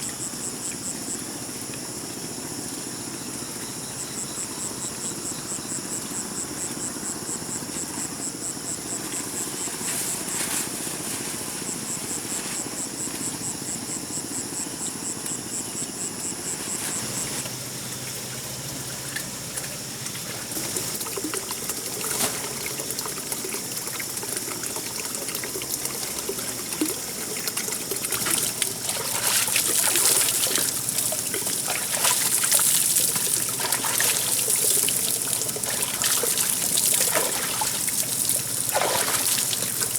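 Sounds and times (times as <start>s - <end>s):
insects chirping: 0.0s - 39.9s
water trickling and splashing: 16.4s - 39.9s.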